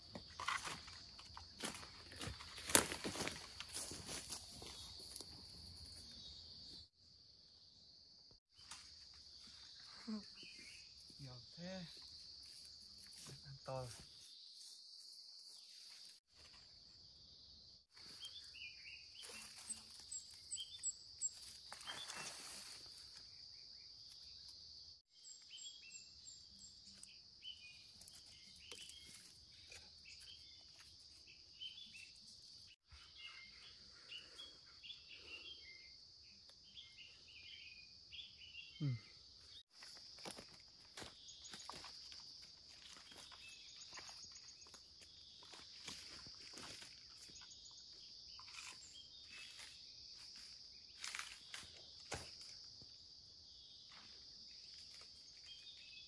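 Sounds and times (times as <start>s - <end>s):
high insect drone: 39.7s - 56.0s.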